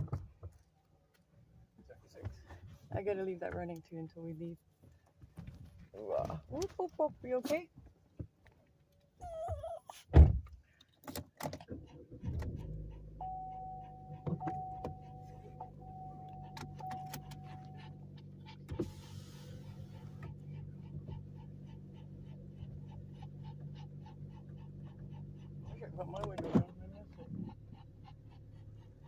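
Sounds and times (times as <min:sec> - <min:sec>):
car door shutting: 0:11.4 - 0:17.8, 0:18.6 - 0:20.4
car engine idling: 0:12.0 - 0:29.0
warning chime tone: 0:13.2 - 0:18.1.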